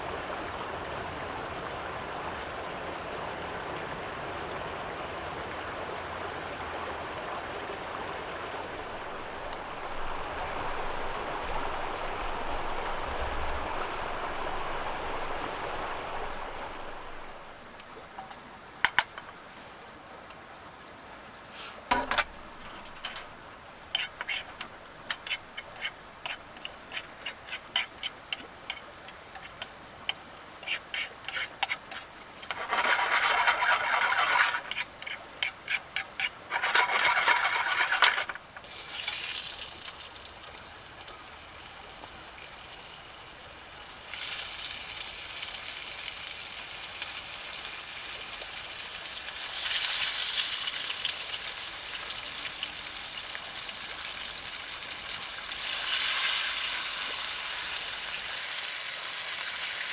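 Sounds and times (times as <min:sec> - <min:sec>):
stirring: 0:21.9 - 0:39.2
food sizzling in a pan: 0:23.9 - 0:40.4, 0:41.0 - 0:59.9.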